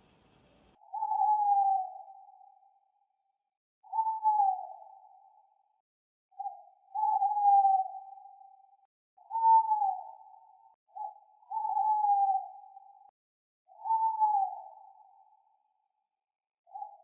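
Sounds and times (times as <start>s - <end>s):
owl hooting: 0.0s - 2.6s, 3.8s - 5.3s, 6.4s - 8.5s, 9.2s - 13.0s, 13.7s - 15.3s.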